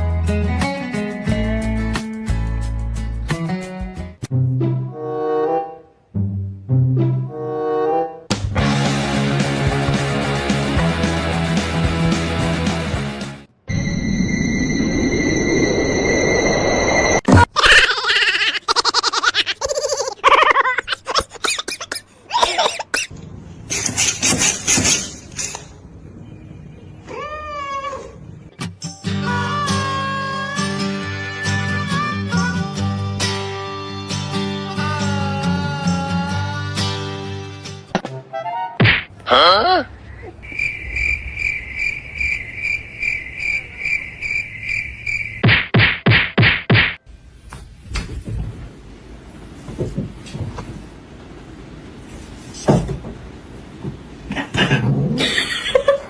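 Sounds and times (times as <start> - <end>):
sharp knocks: 45.4 - 47.0.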